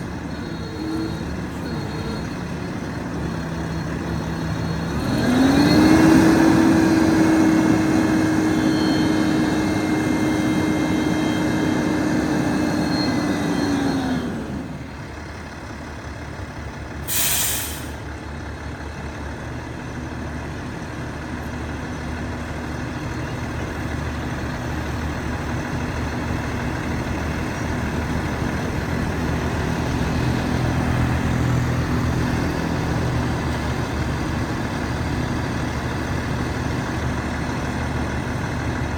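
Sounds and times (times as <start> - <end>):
diesel truck engine revving and idling: 0.0 - 38.9
air release hiss: 17.1 - 18.0.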